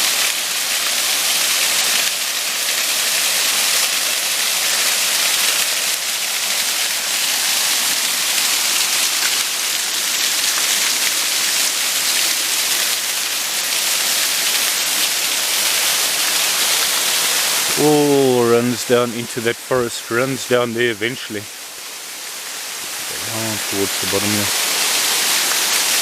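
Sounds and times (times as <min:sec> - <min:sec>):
waterfall pouring: 0:00.0 - 0:26.0.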